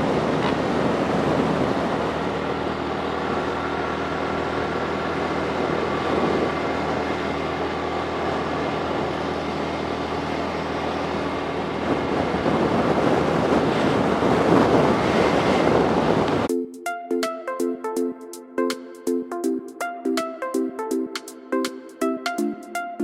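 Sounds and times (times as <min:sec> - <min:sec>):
motorcycle running: 0:00.0 - 0:16.5
road and wind noise: 0:00.0 - 0:16.5.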